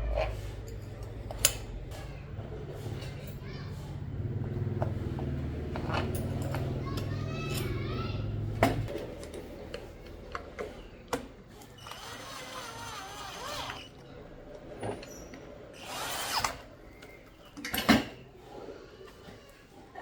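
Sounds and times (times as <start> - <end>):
tools being handled: 5.7 - 7.8
small electric motor humming: 11.8 - 13.9.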